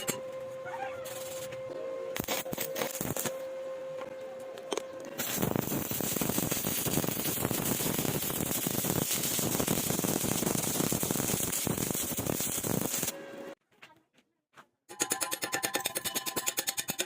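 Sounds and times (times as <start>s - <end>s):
electric arc welding crackle: 1.0s - 1.5s, 2.2s - 3.4s, 5.2s - 13.2s.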